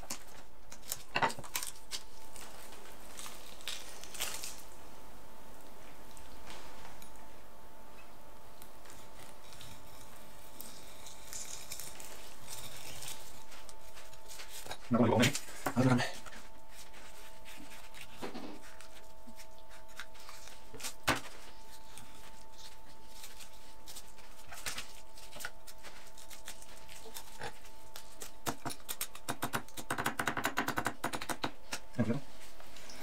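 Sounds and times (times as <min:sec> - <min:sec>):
knife cutting and scraping fish: 0:08.8 - 0:29.9.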